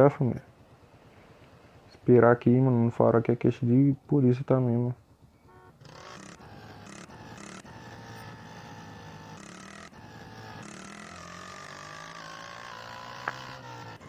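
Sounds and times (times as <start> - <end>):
motorcycle engine running at low revs: 5.0 - 14.0.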